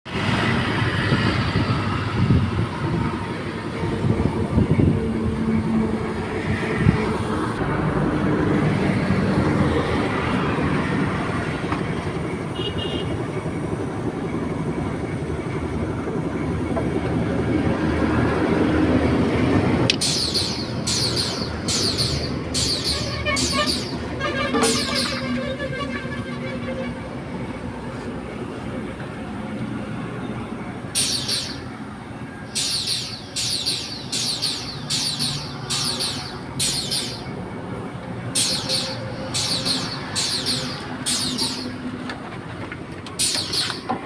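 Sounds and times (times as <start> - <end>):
machine engine rumbling: 19.0 - 26.9, 30.4 - 44.0.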